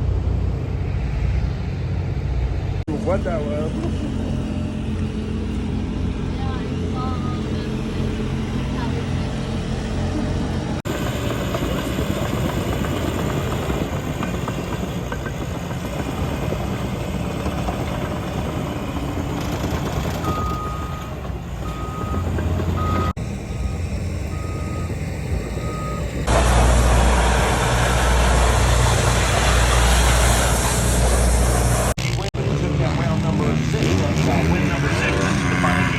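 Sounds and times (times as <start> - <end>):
vehicle engines running: 0.0 - 35.9
reversing alarm beeping: 20.1 - 26.3.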